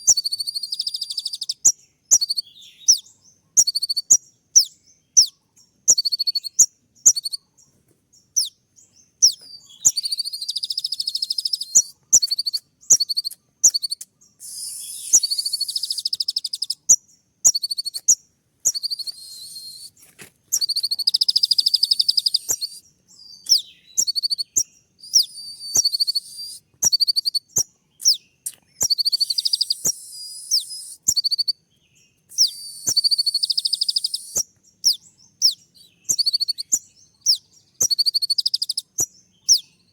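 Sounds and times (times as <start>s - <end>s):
buzzy rapid-fire bird trills: 9.9s - 19.5s, 20.6s - 22.8s, 28.8s - 31.5s, 32.4s - 39.6s
sunbird sharp high chips: 11.6s - 16.9s, 18.7s - 22.8s.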